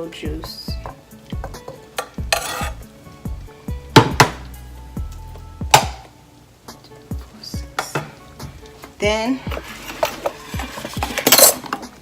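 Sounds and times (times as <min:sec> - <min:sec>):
utensils clinking on pot and dishes: 0:01.6 - 0:02.8, 0:09.5 - 0:12.0.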